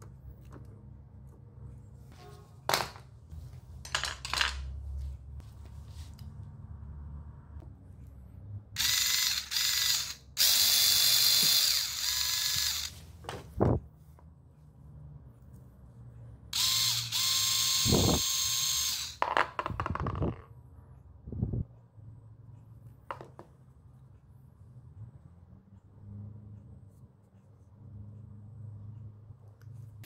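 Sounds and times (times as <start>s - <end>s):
small motor gearbox whirring: 8.8s - 13.0s, 16.6s - 19.2s.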